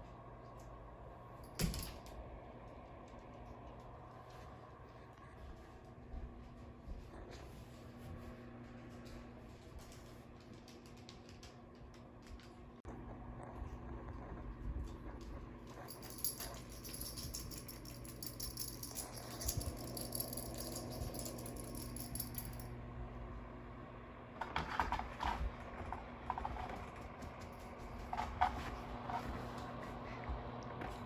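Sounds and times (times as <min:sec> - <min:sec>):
rattling and jangling: 0:01.4 - 0:02.1, 0:15.8 - 0:22.7
steady low hum: 0:11.2 - 0:24.4.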